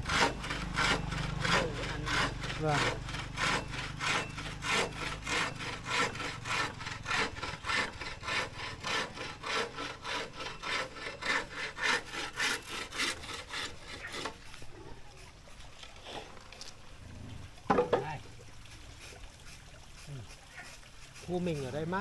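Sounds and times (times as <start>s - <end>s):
hand saw cutting wood: 0.0s - 15.3s, 20.0s - 22.0s.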